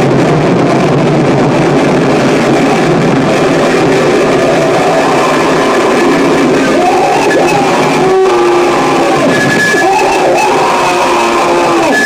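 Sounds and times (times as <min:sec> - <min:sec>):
distorted noise wall: 0:00.0 - 0:12.0
steady tone: 0:00.0 - 0:12.0
wavering pitched squeals: 0:02.8 - 0:12.0.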